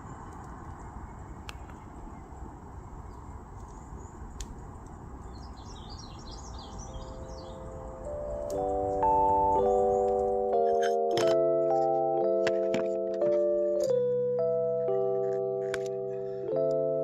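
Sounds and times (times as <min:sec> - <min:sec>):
small bird chirping: 0:00.0 - 0:10.9
bell-like mallet music: 0:06.8 - 0:17.0.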